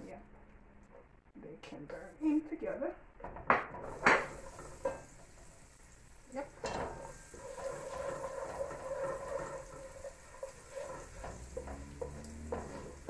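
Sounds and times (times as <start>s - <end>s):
garlic and ginger sizzling in oil: 1.9s - 13.0s
wooden spoon knocking on pot: 3.2s - 5.4s, 6.5s - 13.0s.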